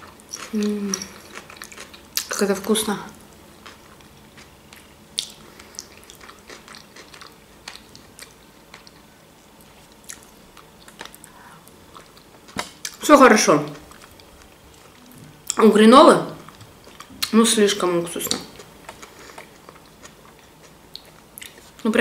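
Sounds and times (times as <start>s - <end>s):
person chewing soft food: 0.0s - 2.3s, 3.6s - 13.0s, 13.8s - 15.6s, 16.4s - 17.3s, 18.5s - 21.8s.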